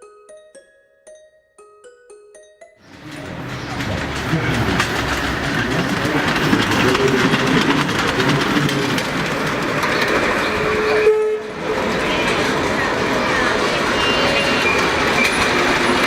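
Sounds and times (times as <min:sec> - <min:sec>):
model train wheels clicking: 0:02.8 - 0:10.9, 0:11.6 - 0:16.0.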